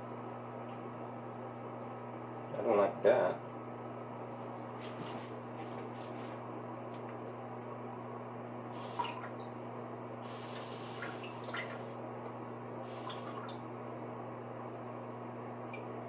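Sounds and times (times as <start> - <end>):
steady low hum: 0.0 - 16.0
short hissing water spurts: 8.7 - 9.4, 10.2 - 12.0, 12.8 - 13.6
water dripping: 10.3 - 12.0, 12.9 - 13.6.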